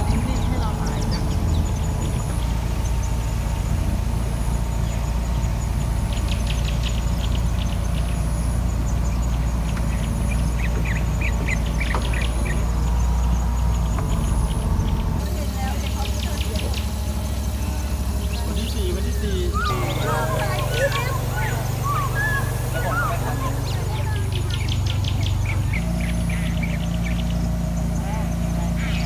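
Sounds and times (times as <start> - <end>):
birds calling: 0.0 - 29.0.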